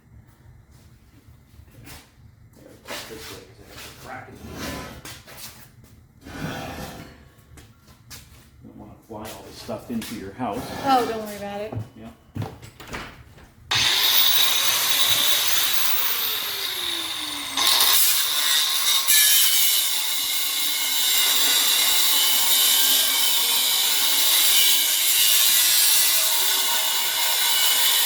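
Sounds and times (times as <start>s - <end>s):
power tool blade grinding steel: 13.7s - 28.0s.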